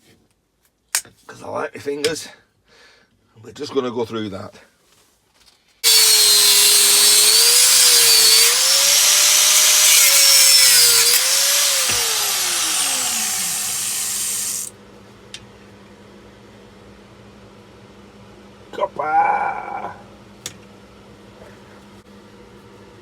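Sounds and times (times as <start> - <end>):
motor whine: 5.8 - 14.7
power tool cutting metal: 5.8 - 14.7.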